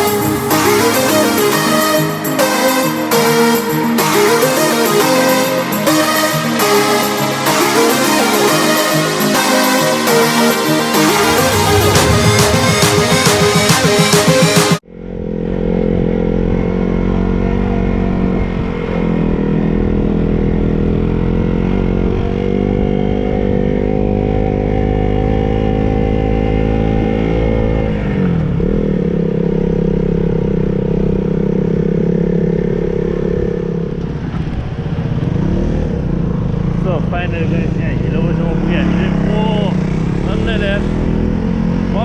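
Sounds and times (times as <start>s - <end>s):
music: 0.0s - 14.8s
motorcycle engine running: 0.0s - 42.0s.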